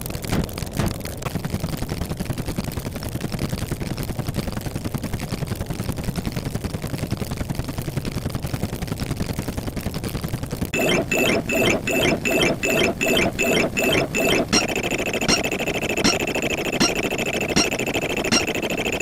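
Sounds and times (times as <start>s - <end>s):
rapid mechanical rattle: 10.8s - 19.0s.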